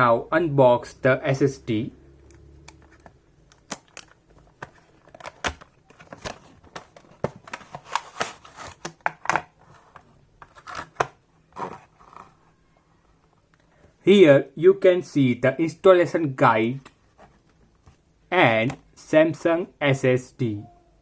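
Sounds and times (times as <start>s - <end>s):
packaging clicks and taps: 2.3s - 12.3s.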